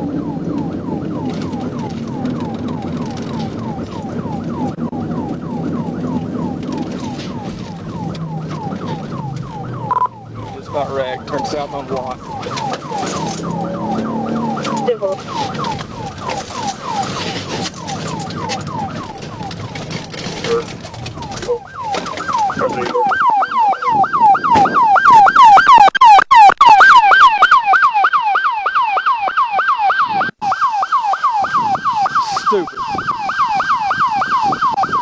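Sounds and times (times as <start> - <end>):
car engine and road noise: 0.0 - 35.0
police siren yelp: 0.0 - 35.0.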